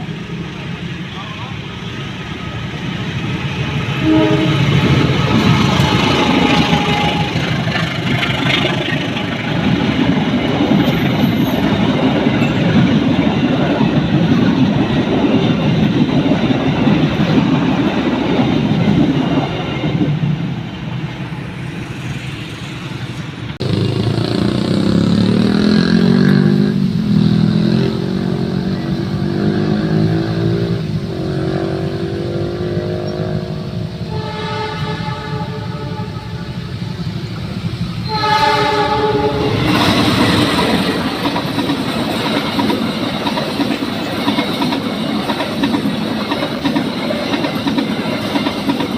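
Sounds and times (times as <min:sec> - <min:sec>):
motorcycle and car engines revving: 0:23.6 - 0:33.9.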